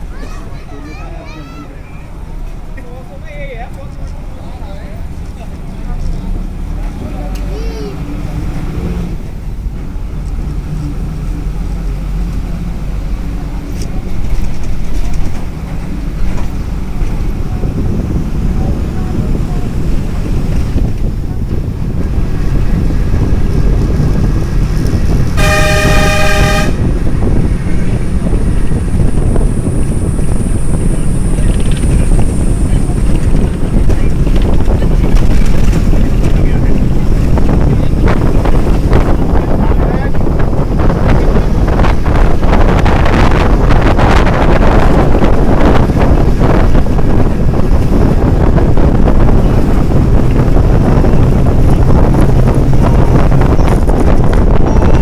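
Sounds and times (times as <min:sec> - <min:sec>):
wind rumbling on microphone: 0:00.0 - 0:55.0
horn blast: 0:25.4 - 0:27.0.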